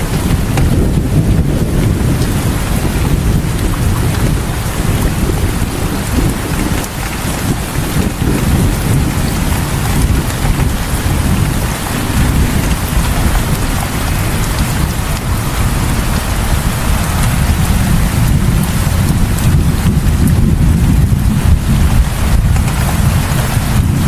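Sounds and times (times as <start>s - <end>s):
deep rumble: 0.0s - 24.0s
heavy rain falling: 0.0s - 24.0s.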